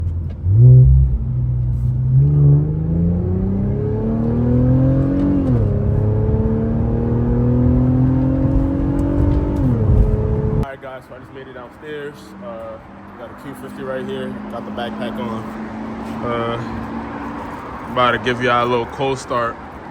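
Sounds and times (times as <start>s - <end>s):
car engine accelerating hard: 0.2s - 10.6s.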